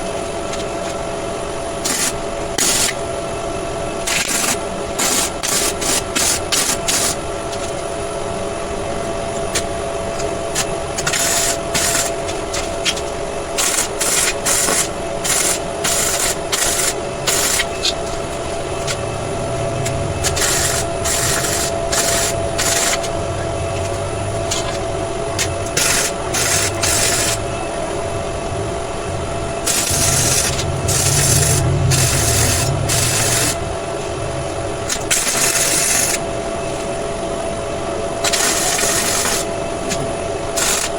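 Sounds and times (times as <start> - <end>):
steady thin hum: 6.4 - 38.2.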